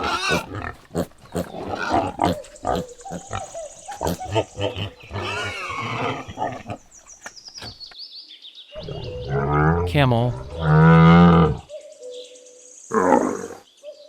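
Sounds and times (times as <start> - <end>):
piglet grunting and squealing: 0.0 - 6.9, 8.8 - 11.7.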